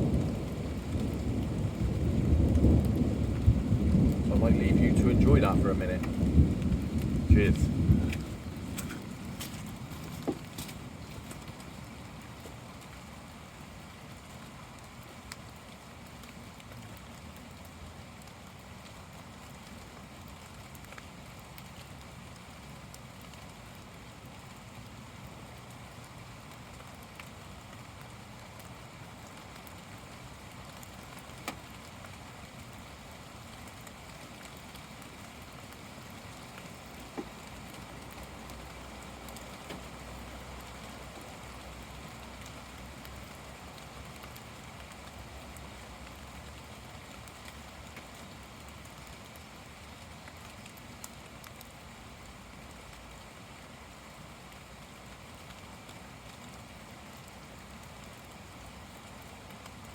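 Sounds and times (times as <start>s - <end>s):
raindrop impacts: 0.0s - 13.3s, 26.5s - 51.8s
heavy rain pouring: 0.0s - 59.9s.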